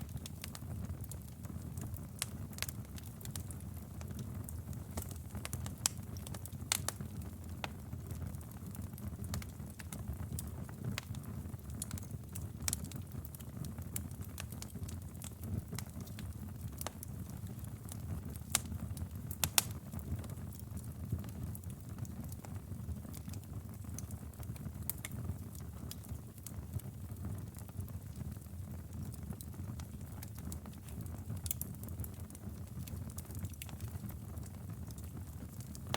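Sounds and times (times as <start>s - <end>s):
wood fire crackling and popping: 0.0s - 35.9s.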